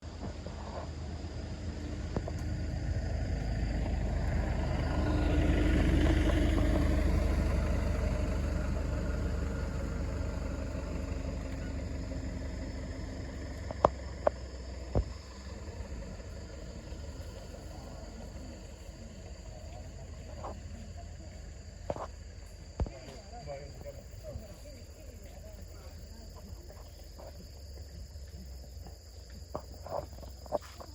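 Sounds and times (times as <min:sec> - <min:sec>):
vehicle passing by: 0:00.6 - 0:30.8.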